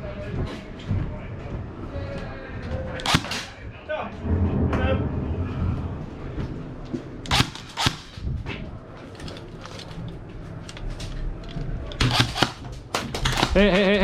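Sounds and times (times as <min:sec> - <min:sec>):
airsoft gun shots: 0:03.0 - 0:03.6, 0:07.3 - 0:08.2, 0:12.0 - 0:13.7.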